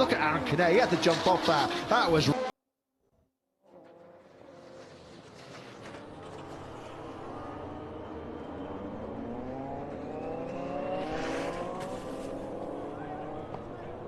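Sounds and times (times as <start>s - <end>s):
racing motorcycles accelerating: 3.7s - 14.0s.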